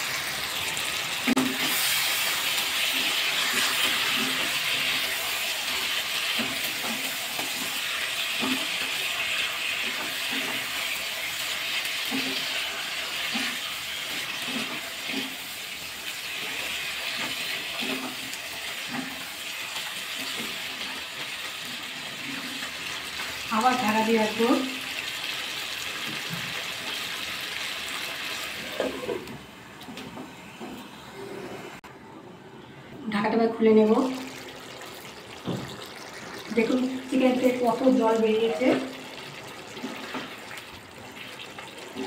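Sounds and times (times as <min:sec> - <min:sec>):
chicken sizzling in a pan: 0:00.0 - 0:29.3.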